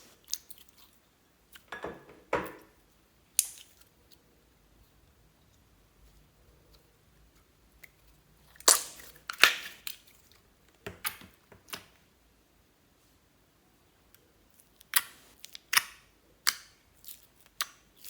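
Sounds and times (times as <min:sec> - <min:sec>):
slime crunches and clicks: 0:08.6 - 0:10.0.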